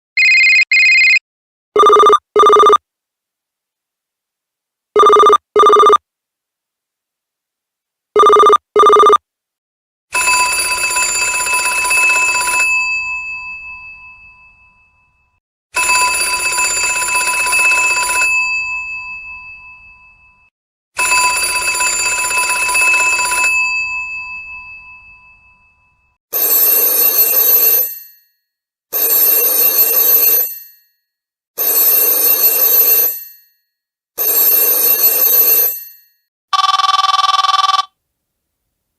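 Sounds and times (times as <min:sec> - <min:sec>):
bell telephone ringing: 0:00.2 - 0:01.2, 0:01.8 - 0:02.8, 0:05.0 - 0:06.0, 0:08.2 - 0:09.2, 0:10.2 - 0:20.4, 0:21.0 - 0:28.4, 0:29.0 - 0:31.0, 0:31.6 - 0:37.9
bright telephone ring: 0:00.2 - 0:01.2, 0:10.2 - 0:20.4, 0:21.0 - 0:28.4, 0:29.0 - 0:31.0, 0:31.6 - 0:38.0.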